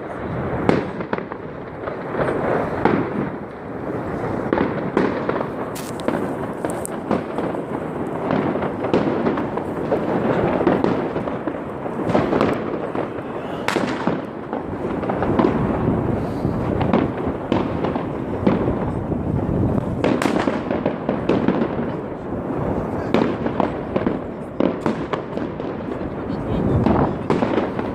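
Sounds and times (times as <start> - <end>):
fireworks and firecrackers banging: 0.0 - 27.9.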